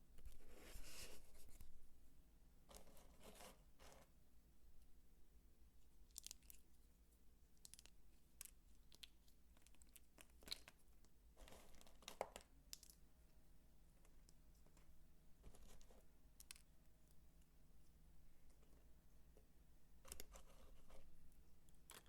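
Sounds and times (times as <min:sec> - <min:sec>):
crinkly crunch of soap: 0:06.0 - 0:06.8, 0:07.4 - 0:13.1, 0:20.0 - 0:22.0.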